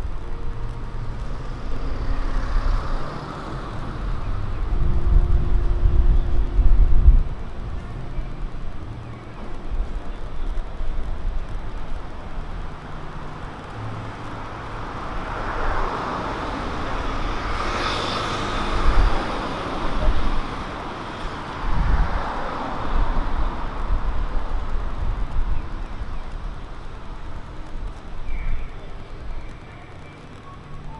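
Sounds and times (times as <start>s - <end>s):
car passing: 0.0s - 28.2s
low traffic rumble: 0.0s - 30.9s.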